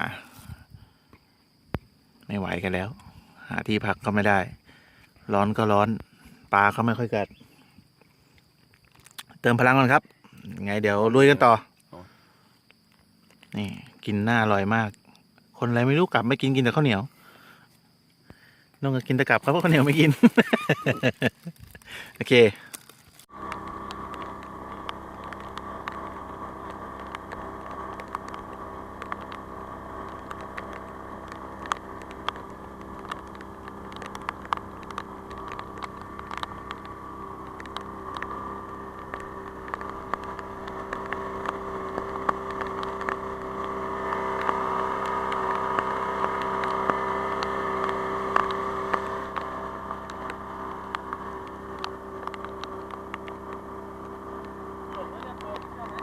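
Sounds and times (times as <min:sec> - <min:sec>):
sharp ticks: 0:19.0 - 0:56.0
boat engine running: 0:21.8 - 0:56.0.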